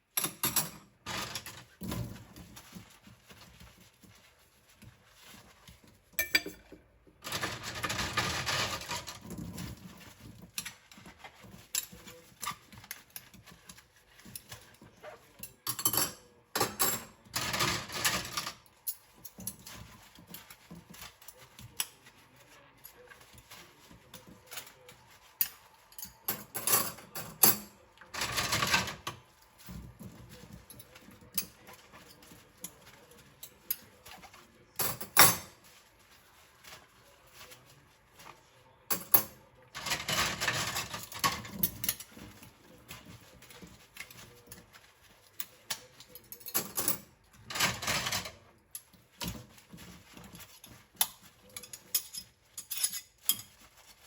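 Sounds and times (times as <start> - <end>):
ceramic dishes clicking and knocking: 6.2 - 6.8.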